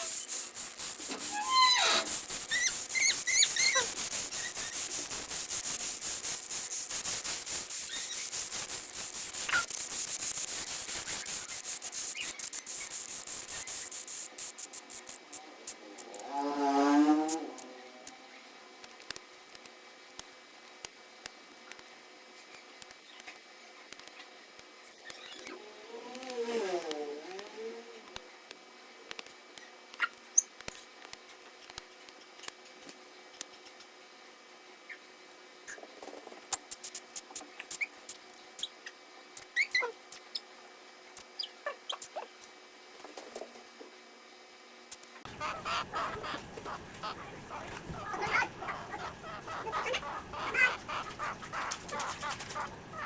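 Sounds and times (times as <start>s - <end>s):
faint small clicks and taps: 28.1s - 33.9s.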